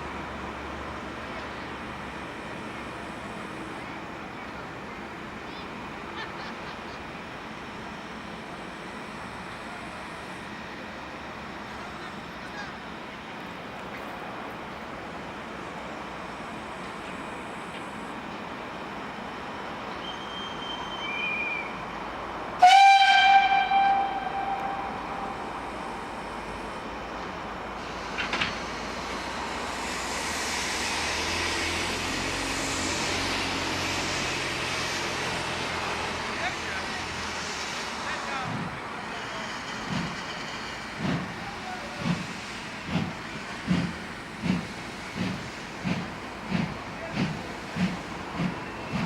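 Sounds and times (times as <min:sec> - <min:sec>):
steam locomotive whistle blast: 0:20.0 - 0:21.7, 0:22.6 - 0:26.2
faint high whistle notes: 0:20.0 - 0:21.8, 0:22.6 - 0:25.6
steam hissing: 0:27.6 - 0:49.0
steam locomotive chuffing: 0:27.6 - 0:49.0.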